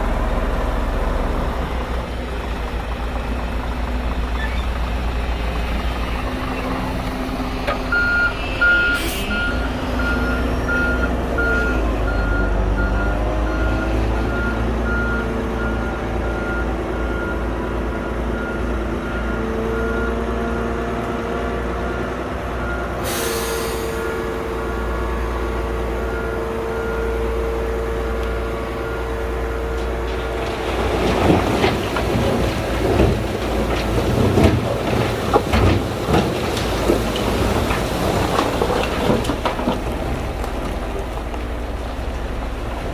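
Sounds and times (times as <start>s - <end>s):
bulldozer diesel engine running: 0.0s - 42.9s
reversing alarm beeping: 7.9s - 20.3s.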